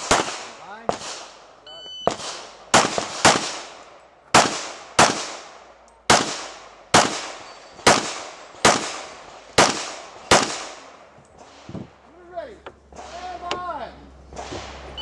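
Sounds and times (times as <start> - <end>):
pistol shots echoing: 0.0 - 11.7.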